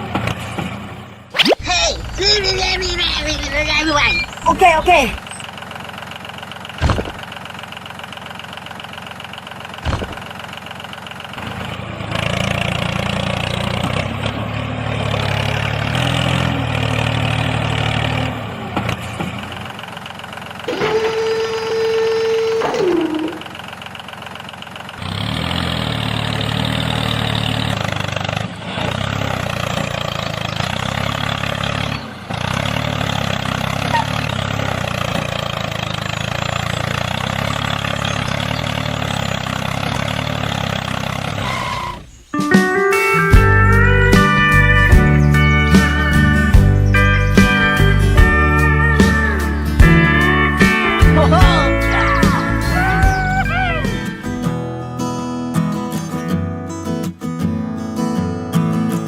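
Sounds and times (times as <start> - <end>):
tractor engine running: 0.0 - 57.2
sharp knocks: 6.8 - 7.2, 9.8 - 10.3.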